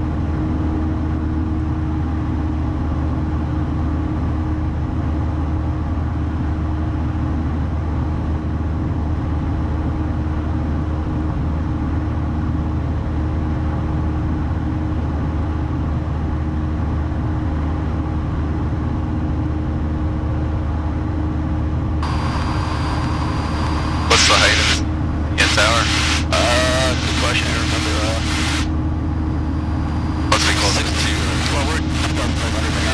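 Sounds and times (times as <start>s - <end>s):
propeller plane engine droning: 13.6s - 32.9s
hiss: 22.0s - 24.8s, 25.4s - 28.7s.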